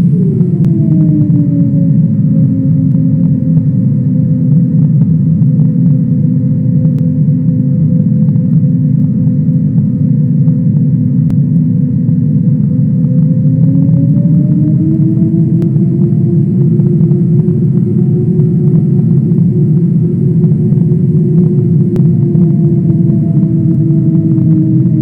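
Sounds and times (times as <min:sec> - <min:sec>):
airliner engines droning in cabin: 0:00.0 - 0:25.0.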